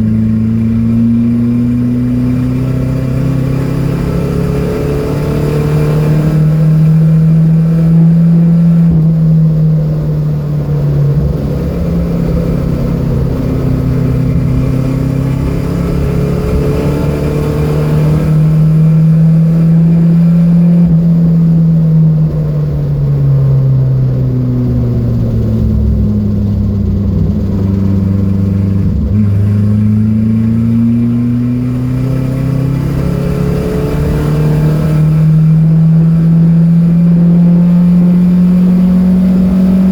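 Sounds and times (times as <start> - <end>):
car engine running hard: 0.0 - 39.9
engine knock: 24.6 - 30.7.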